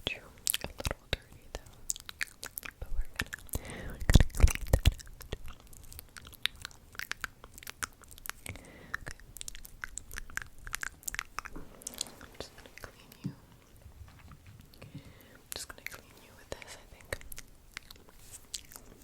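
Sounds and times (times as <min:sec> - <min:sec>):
wet mouth clicks and pops: 0:00.4 - 0:13.4.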